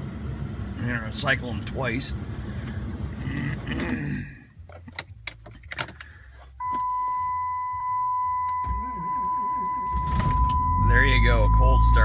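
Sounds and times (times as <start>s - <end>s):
dashboard chime tone: 6.6s - 12.0s.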